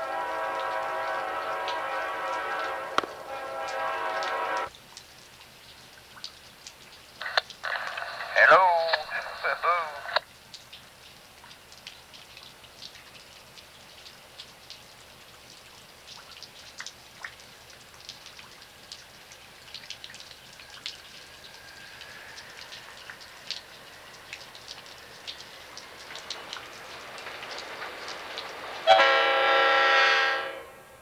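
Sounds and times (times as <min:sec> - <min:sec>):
distant freight train: 0:00.0 - 0:04.7, 0:20.4 - 0:31.0
water drops dripping and splashing: 0:00.0 - 0:09.1, 0:09.7 - 0:30.0
light rain pattering: 0:00.0 - 0:31.0.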